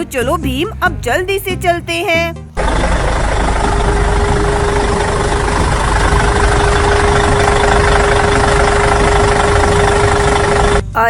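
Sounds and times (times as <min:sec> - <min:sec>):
toy truck engine hum: 0:02.6 - 0:10.9.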